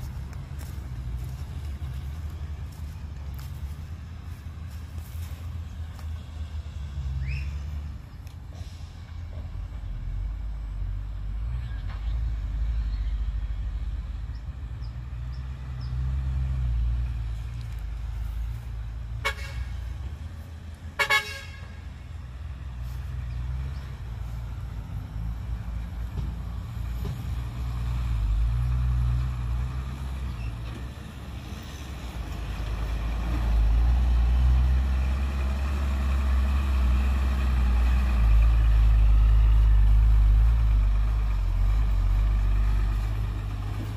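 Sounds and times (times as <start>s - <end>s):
heavy diesel engines rumbling: 0.0s - 43.9s
vehicle horn toots: 19.2s - 19.7s, 21.0s - 21.8s.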